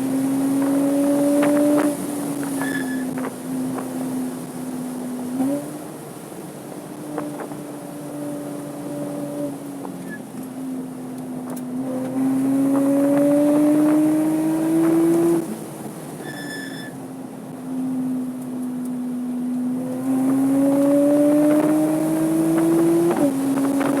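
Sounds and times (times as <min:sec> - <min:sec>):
car engine running under load: 0:00.0 - 0:24.0.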